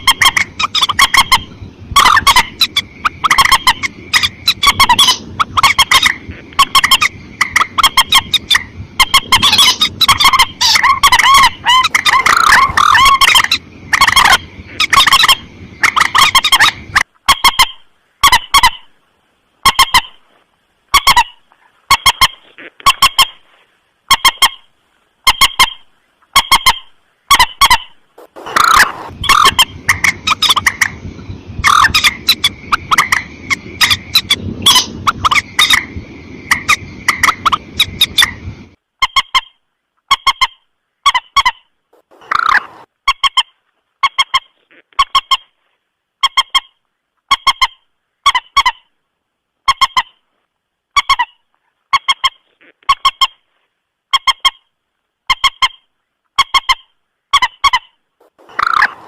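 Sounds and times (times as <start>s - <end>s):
moorhen honking calls: 0.0s - 18.9s, 25.2s - 38.4s, 40.1s - 43.5s, 56.4s - 59.0s.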